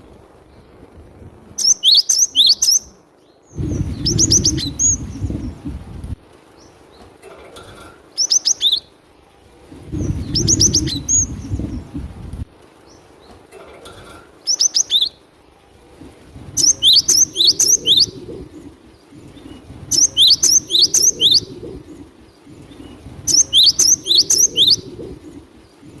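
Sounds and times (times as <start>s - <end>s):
bird singing high repeated notes: 1.6s - 5.9s, 9.9s - 12.2s, 16.6s - 26.0s.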